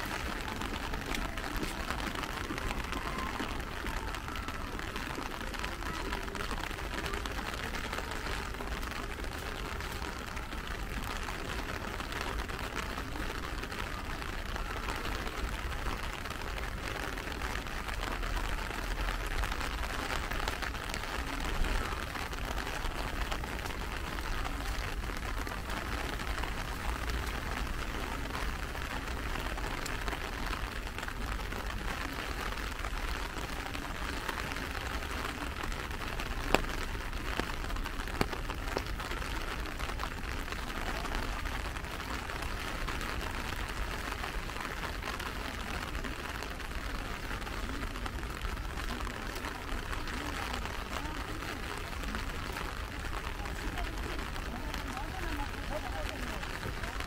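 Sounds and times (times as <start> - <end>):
raindrops pattering: 0.0 - 57.0.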